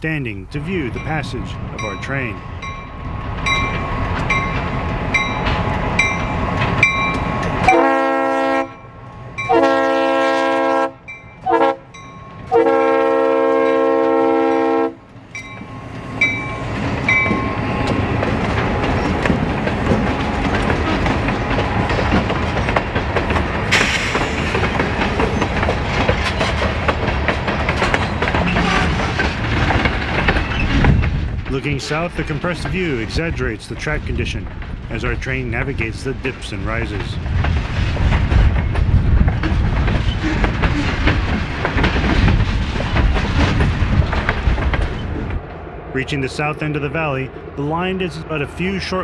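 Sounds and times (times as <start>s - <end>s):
locomotives rumbling past: 0.0s - 49.0s
locomotive bell ringing: 0.4s - 7.9s, 8.7s - 9.7s, 11.0s - 12.7s, 15.3s - 18.0s
freight cars clattering over rail joints: 0.6s - 7.8s, 15.2s - 45.4s
train air horn blasts: 7.6s - 8.8s, 9.5s - 11.9s, 12.5s - 15.0s, 28.4s - 29.0s.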